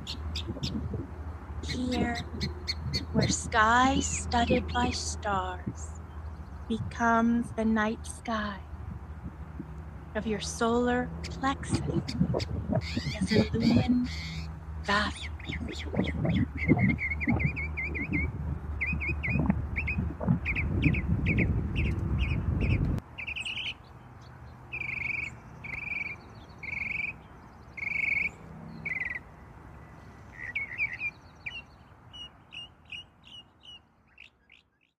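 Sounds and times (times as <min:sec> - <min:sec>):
birds chirping: 0:00.0 - 0:35.0
low rumble: 0:11.1 - 0:14.0, 0:15.2 - 0:23.0.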